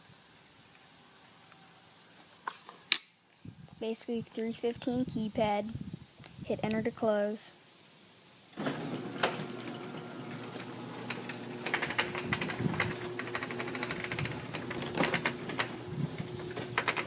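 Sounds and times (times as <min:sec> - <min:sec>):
garage door motor hum: 0:08.6 - 0:17.0
chain and rollers rattling: 0:08.7 - 0:17.0.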